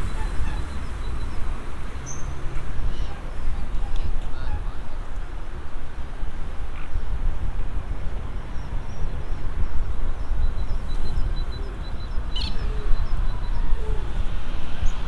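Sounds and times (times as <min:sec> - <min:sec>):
small birds chirping: 0:08.6 - 0:15.0
low outdoor rumble: 0:10.2 - 0:15.0.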